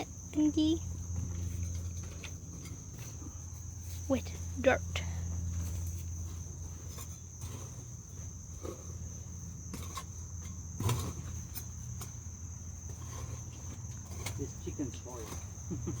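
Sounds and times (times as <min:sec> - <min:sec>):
shovel scraping over wire mesh: 0:09.7 - 0:12.2.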